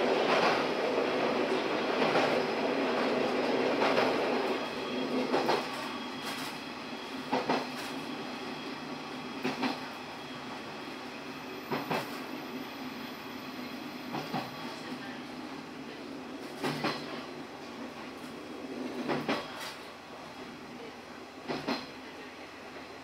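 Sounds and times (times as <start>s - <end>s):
train running rumble: 0.0s - 10.4s, 11.4s - 20.4s.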